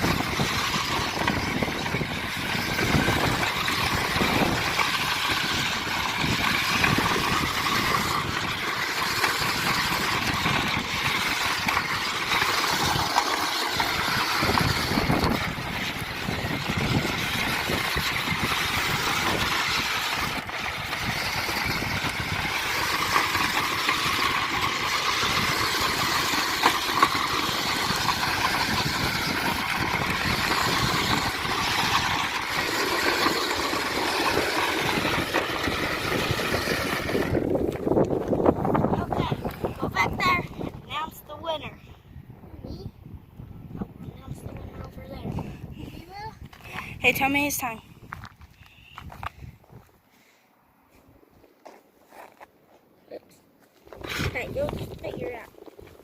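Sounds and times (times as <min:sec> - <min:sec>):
radio-controlled truck motor: 0:00.0 - 0:40.5.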